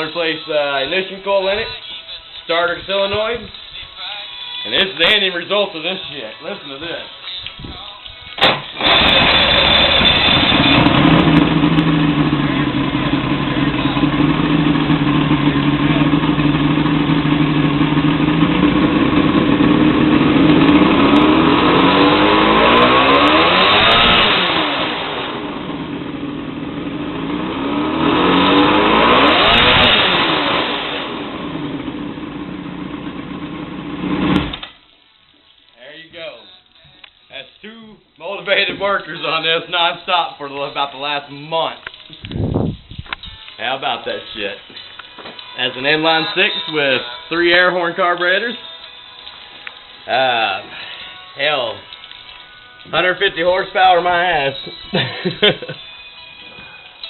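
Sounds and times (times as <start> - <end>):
boat engine running and revving: 8.8 - 32.1.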